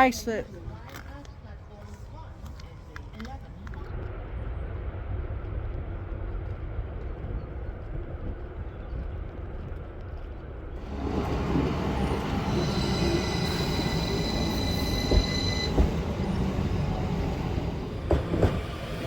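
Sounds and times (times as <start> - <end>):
train running: 0.0 - 19.0
high-pitched squeal: 10.9 - 17.8.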